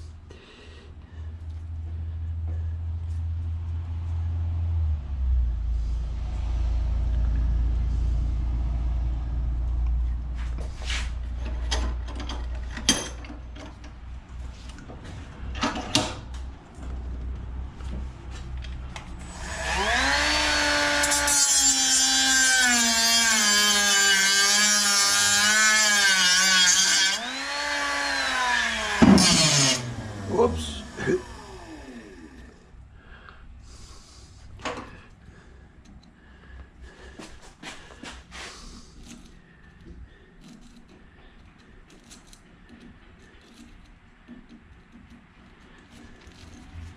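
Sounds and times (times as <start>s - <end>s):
power tool cutting metal: 19.3s - 32.6s.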